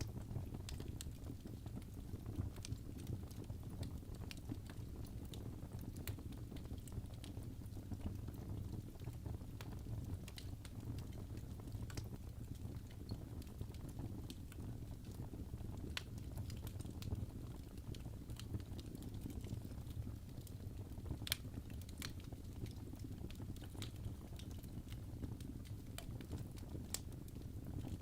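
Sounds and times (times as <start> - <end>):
fire crackling and popping: 0.0 - 28.0
low rumble of flames: 0.0 - 28.0.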